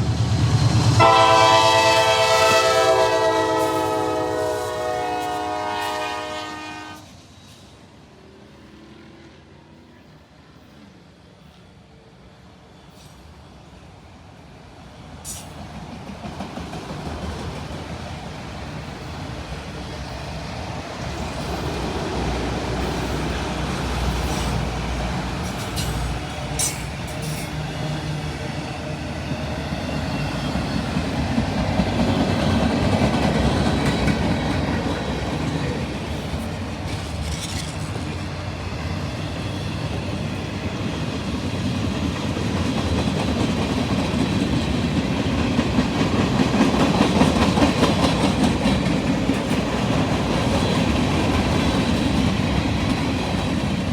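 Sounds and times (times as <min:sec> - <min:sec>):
freight train wheels rumbling: 0:00.0 - 0:53.9
rail-joint clacks: 0:15.2 - 0:28.6, 0:29.9 - 0:38.5, 0:39.3 - 0:53.9
sharp metal clanks: 0:25.5 - 0:27.6.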